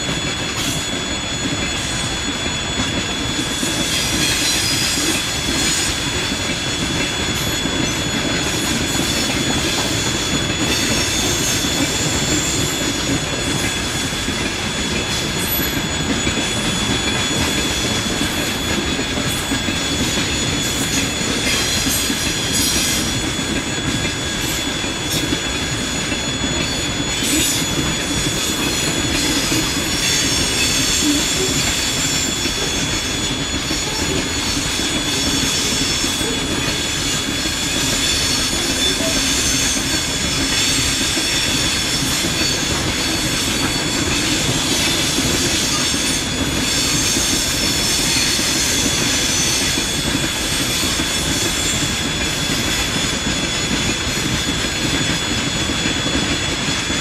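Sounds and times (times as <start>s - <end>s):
high squeal: 0.0s - 56.9s
train wheels rumbling on rail: 0.0s - 57.0s.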